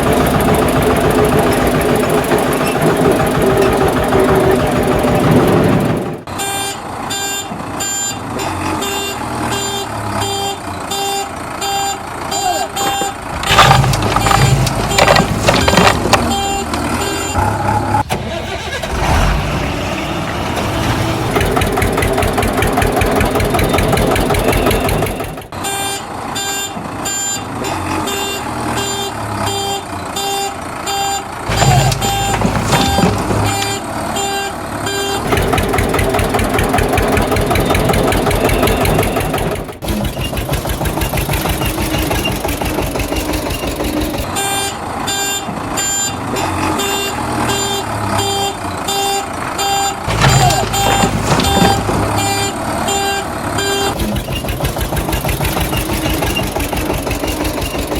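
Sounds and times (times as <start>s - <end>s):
heavy vehicle engine running: 0.0s - 57.9s
reversing alarm beeping: 6.4s - 18.0s, 23.4s - 36.3s, 37.1s - 39.6s, 43.5s - 54.5s.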